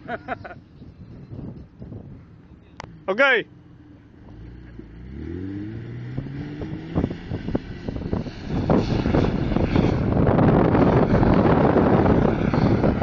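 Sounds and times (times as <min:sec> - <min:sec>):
wind buffeting microphone: 0:00.1 - 0:02.7, 0:05.8 - 0:13.0
engine revving: 0:02.8 - 0:13.0.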